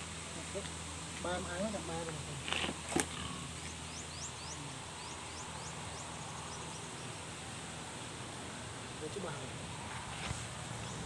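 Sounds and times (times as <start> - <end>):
small bird chirping: 3.5 - 7.4.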